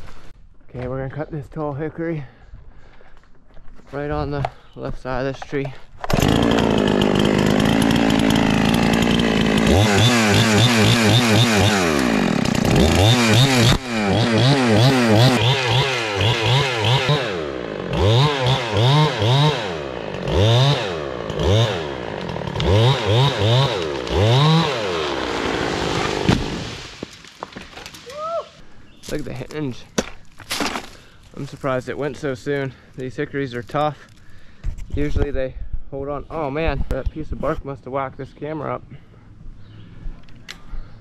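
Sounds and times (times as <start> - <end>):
chainsaw revving: 6.0 - 27.1.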